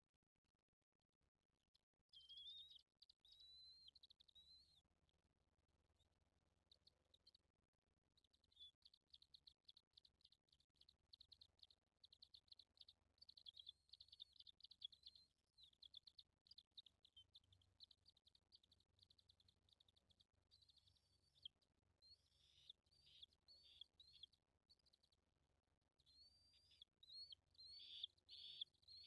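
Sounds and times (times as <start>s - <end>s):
high-pitched bird chirps: 26.2s - 29.0s.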